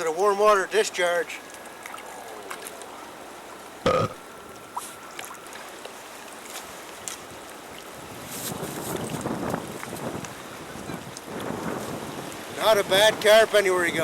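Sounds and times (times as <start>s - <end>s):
wind on the microphone: 7.2s - 14.0s.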